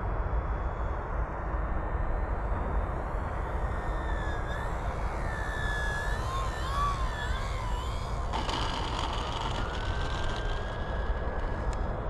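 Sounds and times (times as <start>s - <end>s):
wind rumble on microphone: 0.0s - 12.0s
model plane motor whine: 2.9s - 12.0s.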